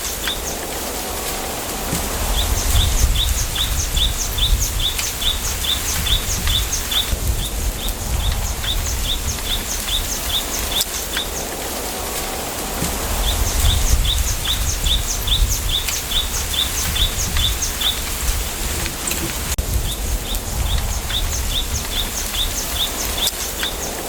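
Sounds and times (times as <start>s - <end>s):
bamboo forest hiss: 0.0s - 24.0s
low wind rumble: 0.0s - 24.0s
small bird chirping: 2.3s - 11.5s, 13.1s - 18.8s, 19.8s - 24.0s.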